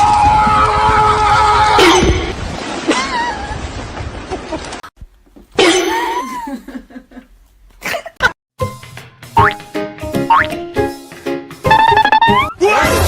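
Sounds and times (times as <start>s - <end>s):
background noise: 5.0s - 8.3s.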